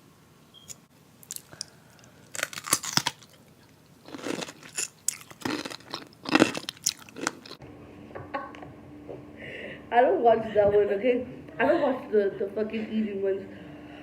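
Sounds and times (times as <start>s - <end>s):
person chewing crunchy snack: 1.2s - 7.6s.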